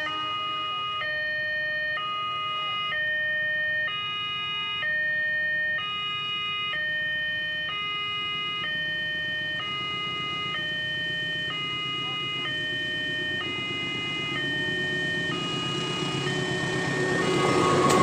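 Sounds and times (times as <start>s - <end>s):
level crossing two-tone alarm: 0.0s - 18.0s
low rumble: 8.7s - 18.0s.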